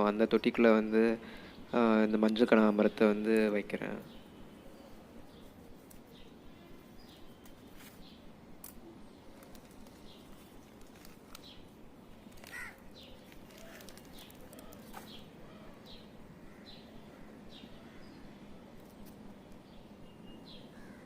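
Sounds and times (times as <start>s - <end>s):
birds chirping: 0.0s - 21.0s
loud bird call: 12.4s - 18.4s.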